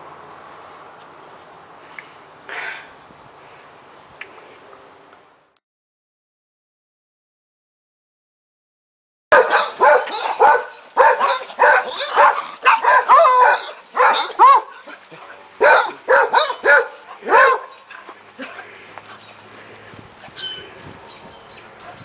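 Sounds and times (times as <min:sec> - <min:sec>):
dogs barking and yipping: 0:09.3 - 0:22.0.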